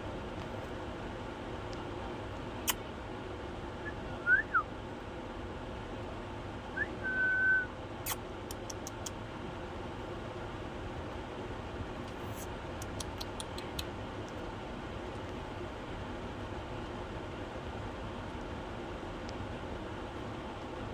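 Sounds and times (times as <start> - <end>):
sharp clicks: 8.1 - 9.2, 12.8 - 14.4.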